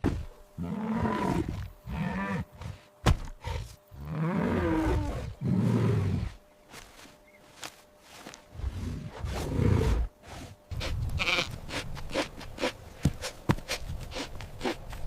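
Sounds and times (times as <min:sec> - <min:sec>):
sheep bleating: 0:11.2 - 0:11.6.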